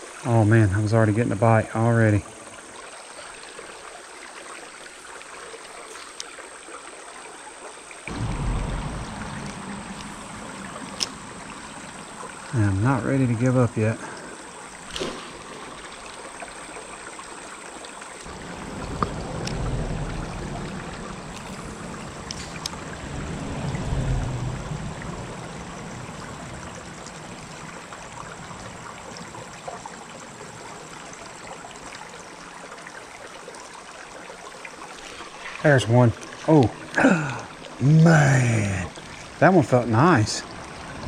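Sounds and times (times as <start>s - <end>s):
creek water trickling: 0.0s - 41.0s
low rumbles: 8.1s - 14.9s, 18.3s - 29.3s.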